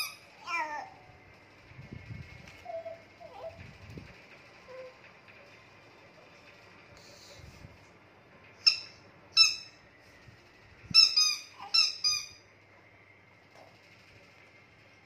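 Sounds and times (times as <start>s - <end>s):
squeaky rubber toy squeaks: 0.0s - 0.3s, 8.6s - 9.8s, 10.9s - 12.4s.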